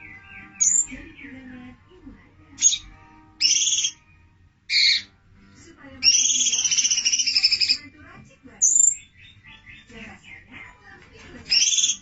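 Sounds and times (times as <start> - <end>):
rapid bird trill: 0.0 - 1.3, 2.6 - 5.1, 6.0 - 7.9, 8.6 - 10.5, 11.5 - 12.0
songbird calls: 0.0 - 1.5, 2.6 - 4.1, 4.7 - 5.1, 6.0 - 7.9, 8.6 - 10.8, 11.5 - 12.0.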